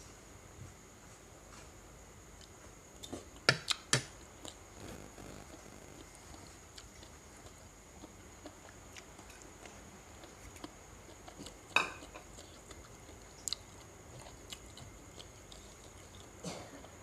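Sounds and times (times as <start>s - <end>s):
person chewing: 4.4s - 16.3s.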